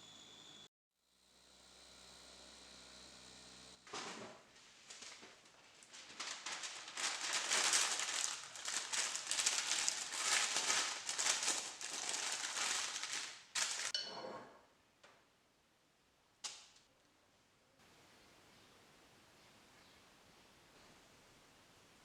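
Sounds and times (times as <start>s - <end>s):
crackling and rustling: 3.9s - 14.0s.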